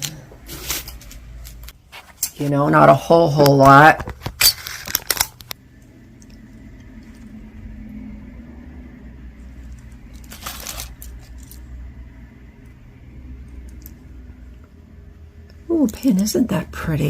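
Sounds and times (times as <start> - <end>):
low steady hum: 0.0 - 17.0
jewelry clinking and clattering: 9.7 - 11.6.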